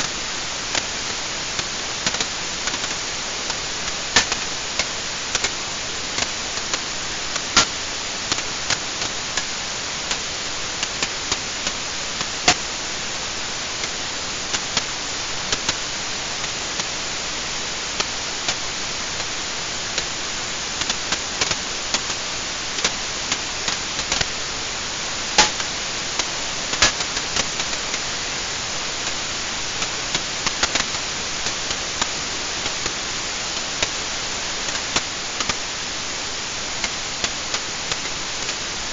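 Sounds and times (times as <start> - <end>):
wood fire crackling and popping: 0.6 - 12.7, 25.2 - 28.1.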